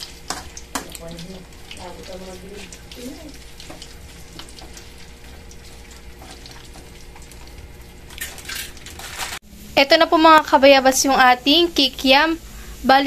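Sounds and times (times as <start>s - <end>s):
food sizzling in hot oil: 0.0s - 13.0s
metal spatula tapping and scraping: 0.3s - 1.2s.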